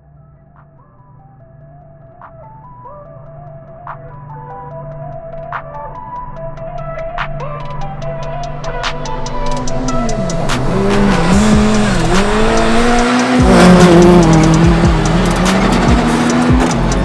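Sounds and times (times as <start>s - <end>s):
background music with steady beat: 0.0s - 17.0s
rally car engine revving: 9.4s - 17.0s.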